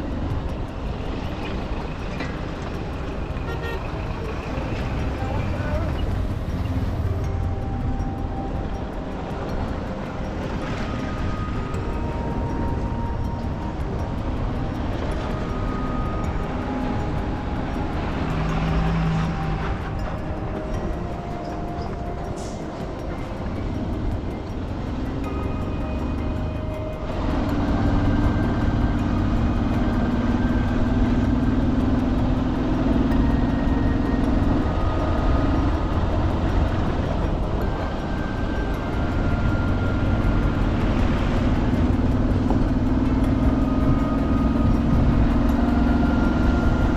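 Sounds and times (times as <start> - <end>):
vehicle rumble with road noise: 0.0 - 46.9.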